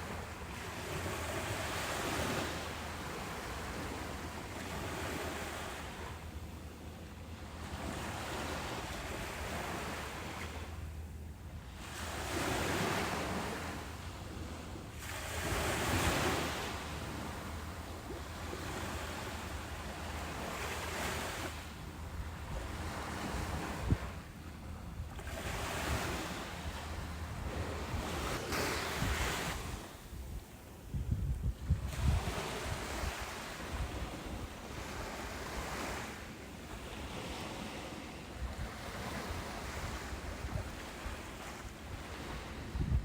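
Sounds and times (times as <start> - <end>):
ocean waves breaking on beach: 0.0 - 30.9, 31.5 - 43.0.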